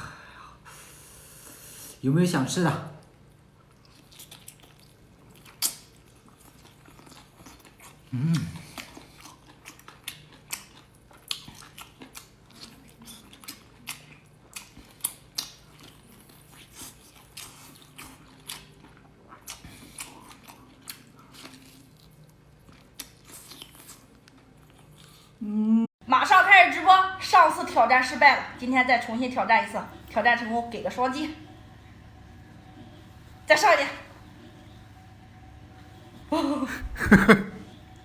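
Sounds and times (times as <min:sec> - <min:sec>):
person chewing and biting: 0:03.7 - 0:25.4.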